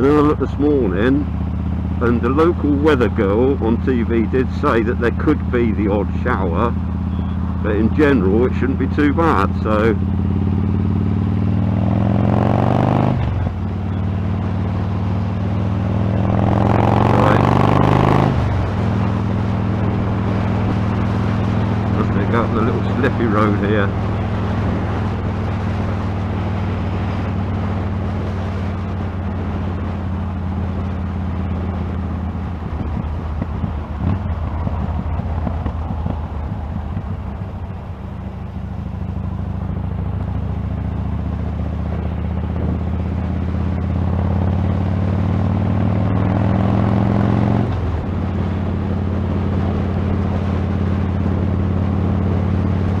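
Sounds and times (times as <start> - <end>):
motorcycle engine running: 0.0 - 53.0
wind noise on microphone: 31.8 - 38.0.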